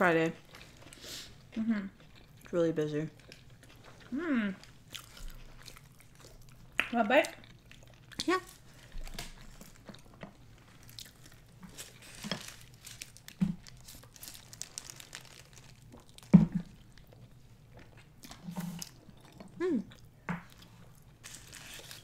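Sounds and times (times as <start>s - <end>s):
chewing and biting food: 0.4s - 22.0s
food crunching: 0.4s - 22.0s
crinkling: 7.7s - 19.0s, 20.5s - 22.0s.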